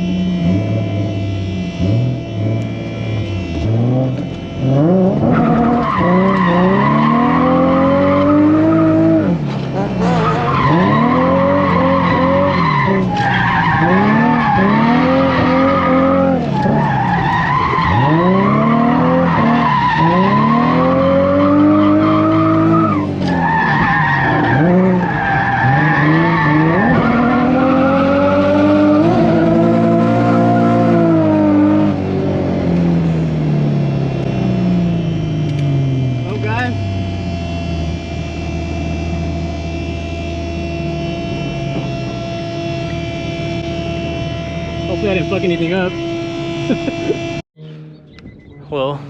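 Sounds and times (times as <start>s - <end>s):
car engine revving hard: 0.0s - 48.1s
tire squeal: 1.8s - 32.0s.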